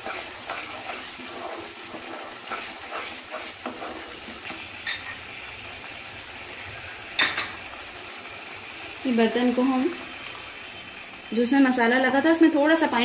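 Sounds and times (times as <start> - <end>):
wooden spatula scraping: 0.0 - 4.7
paste sizzling in oil: 0.0 - 13.0.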